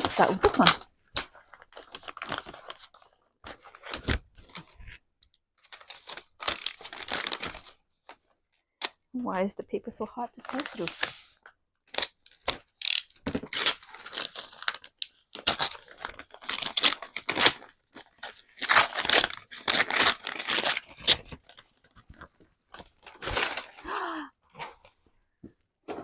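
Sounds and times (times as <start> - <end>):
paper tearing and crumpling: 10.5 - 22.2.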